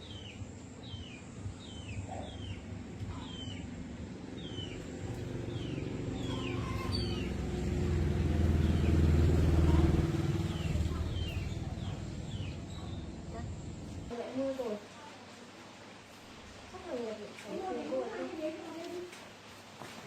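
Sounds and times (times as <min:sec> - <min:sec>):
low rumble: 0:02.6 - 0:14.1.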